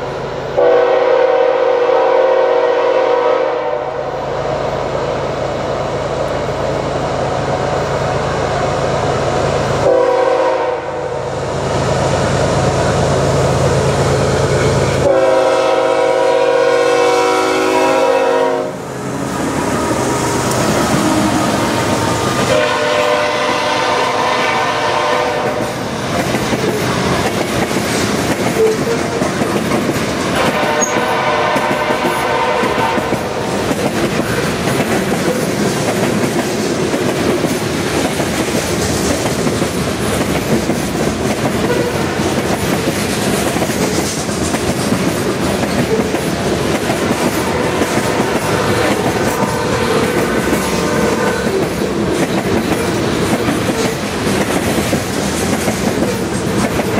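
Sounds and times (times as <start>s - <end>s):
locomotive horn chord: 0.6s - 4.2s, 9.8s - 11.2s, 14.6s - 25.8s, 30.4s - 33.4s
train wheels clacking over rail joints: 19.5s - 56.9s.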